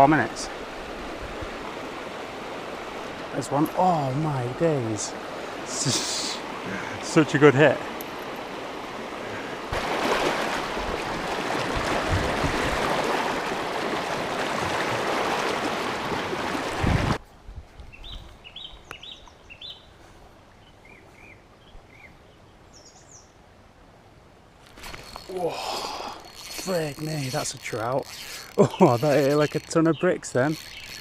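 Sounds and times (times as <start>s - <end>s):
small bird chirping: 26.2s - 31.0s.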